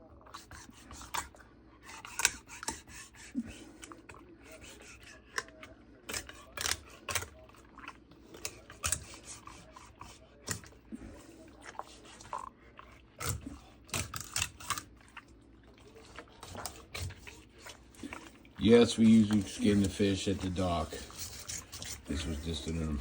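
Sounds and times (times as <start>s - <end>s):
knife cutting through fish: 0.3s - 7.5s, 8.3s - 10.8s, 13.2s - 14.9s, 16.0s - 23.0s.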